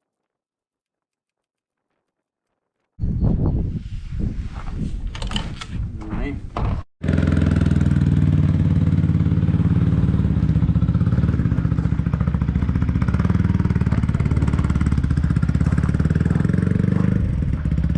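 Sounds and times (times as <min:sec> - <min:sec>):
motorcycle engine running: 0:07.0 - 0:17.9.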